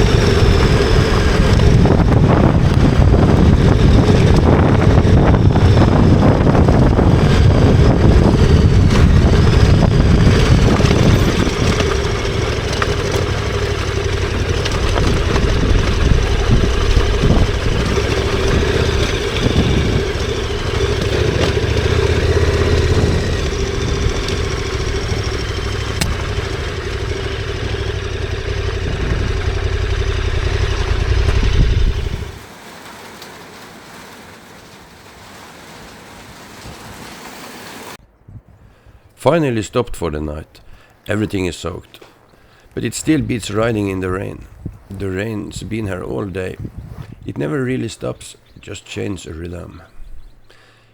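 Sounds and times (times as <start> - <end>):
motorcycle engine running: 0.0 - 32.5.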